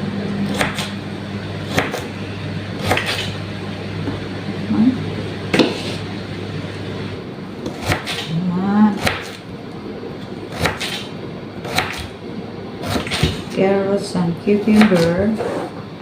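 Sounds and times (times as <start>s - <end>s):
knife chopping carrot on board: 1.7s - 2.1s, 2.8s - 3.3s.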